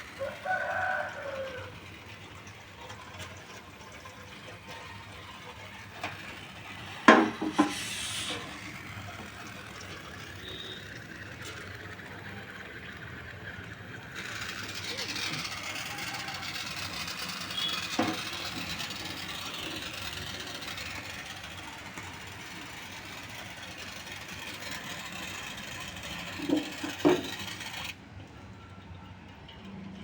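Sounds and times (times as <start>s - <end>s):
pressurized gas hissing: 6.3s - 10.9s
knocks from handling fittings: 7.0s - 8.4s, 17.9s - 18.7s, 26.4s - 27.4s.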